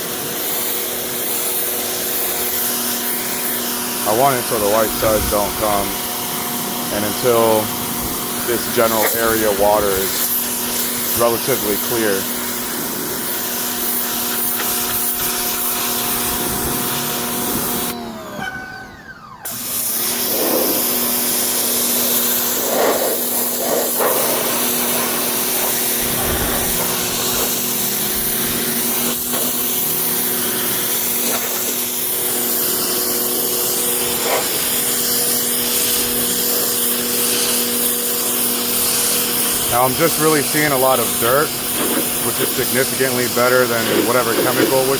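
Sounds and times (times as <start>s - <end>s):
water jet spraying hiss: 0.0s - 18.4s, 19.4s - 44.9s
pressure washer motor hum: 0.0s - 44.9s.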